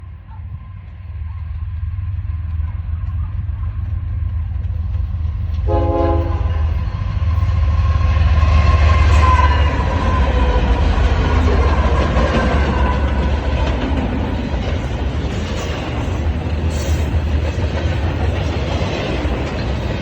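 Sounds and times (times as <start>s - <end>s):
diesel locomotive rumble: 0.0s - 20.0s
train horn blast: 5.6s - 6.8s, 8.8s - 10.6s.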